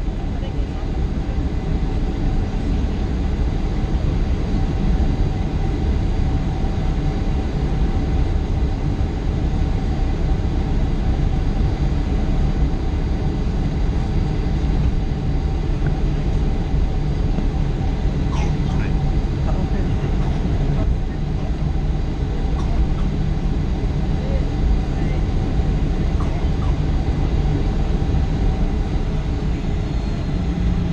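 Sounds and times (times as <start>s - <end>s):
aircraft cabin engine rumble: 0.0s - 30.9s
constant whine: 0.0s - 30.9s.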